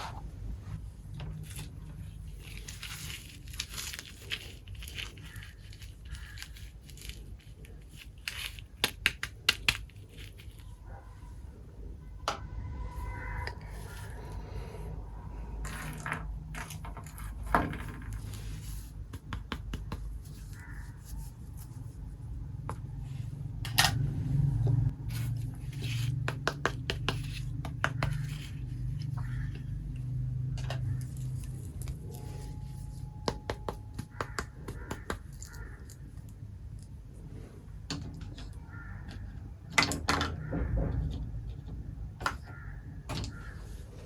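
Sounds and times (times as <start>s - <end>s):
steady low hum: 18.2s - 39.6s.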